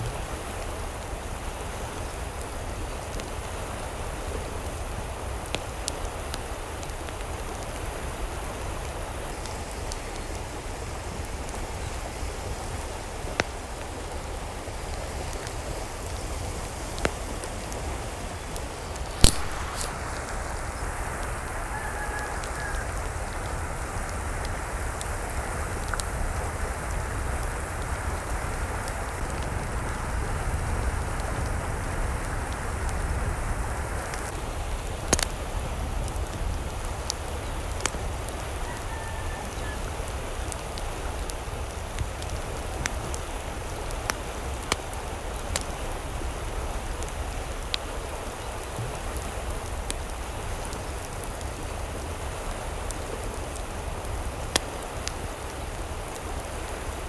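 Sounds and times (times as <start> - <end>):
rain-like water noise: 0.0 - 57.0
sharp drip-like ticks: 14.8 - 31.6, 34.0 - 45.8.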